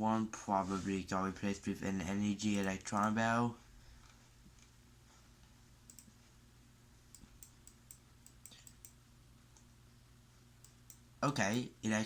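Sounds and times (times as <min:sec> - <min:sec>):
low steady hum: 0:00.0 - 0:12.0
faint computer mouse clicks: 0:05.8 - 0:06.2, 0:07.1 - 0:09.7.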